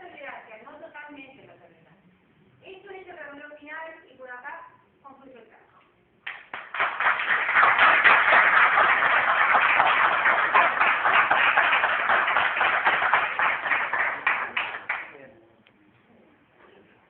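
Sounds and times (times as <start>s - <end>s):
crowd applauding: 6.3s - 15.1s.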